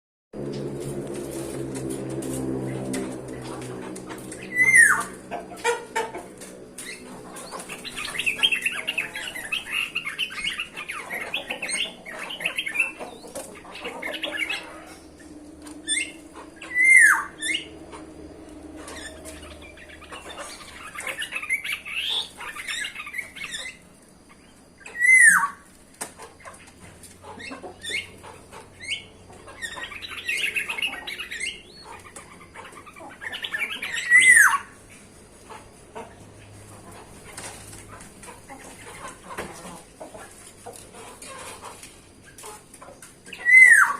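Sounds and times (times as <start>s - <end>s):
birds chattering: 2.4s - 43.9s.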